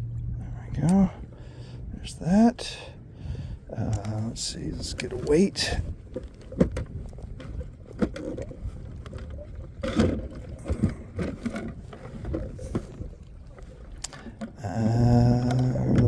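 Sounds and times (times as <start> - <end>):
fishing tackle clicking and rustling: 3.9 - 14.6.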